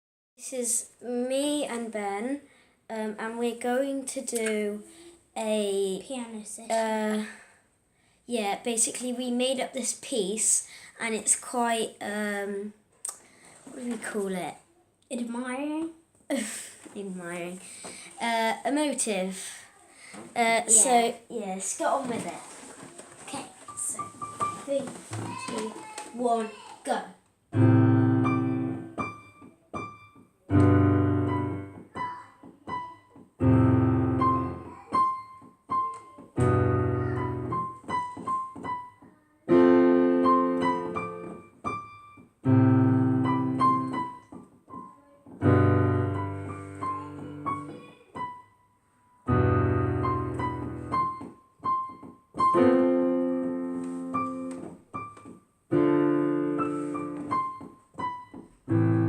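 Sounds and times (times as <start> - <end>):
slow emotive piano piece: 32.9 - 44.3, 45.4 - 48.4, 55.8 - 59.0.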